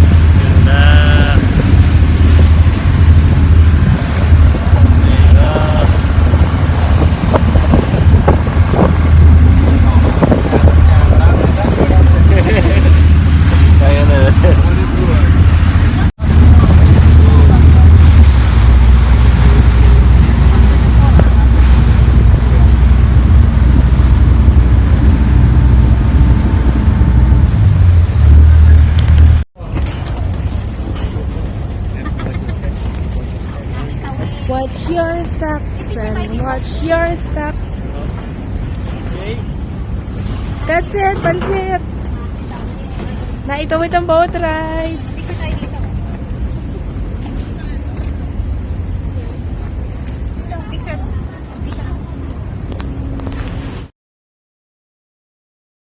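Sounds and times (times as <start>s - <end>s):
wind buffeting microphone: 0.0s - 29.4s
water rushing past: 0.0s - 29.5s
boat engine humming: 0.0s - 53.9s.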